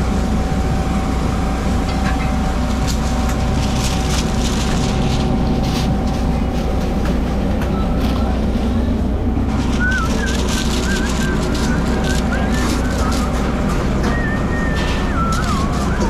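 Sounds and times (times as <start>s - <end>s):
thin steady whine: 0.0s - 16.0s
vehicle rumbling in motion: 0.0s - 16.0s.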